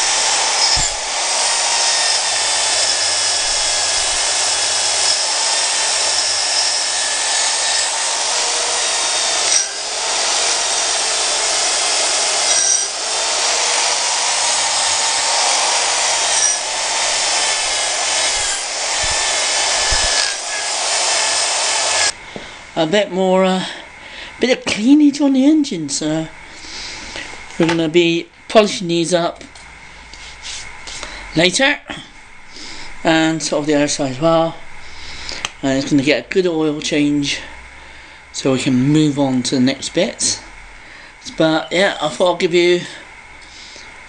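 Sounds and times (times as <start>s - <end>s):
rotary power tool grinding metal: 0.0s - 22.2s.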